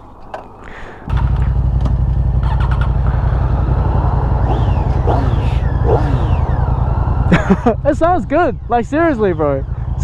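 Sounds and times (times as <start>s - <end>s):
motorcycle engine running: 1.1s - 10.0s.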